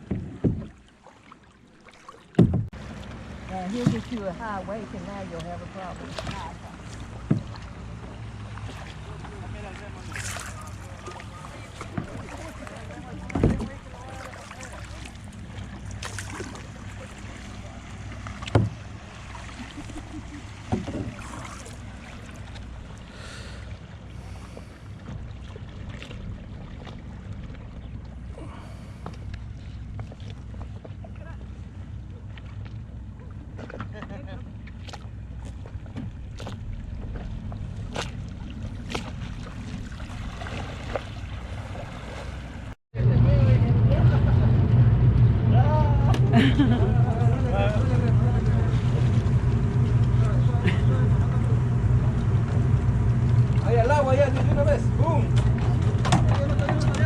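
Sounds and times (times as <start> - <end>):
water splashing strokes: 0.0 - 33.9, 34.6 - 42.8, 46.0 - 57.0
boat motor humming: 0.0 - 57.0
low rumble on water: 0.0 - 57.0
sharp knocks: 2.4 - 2.8.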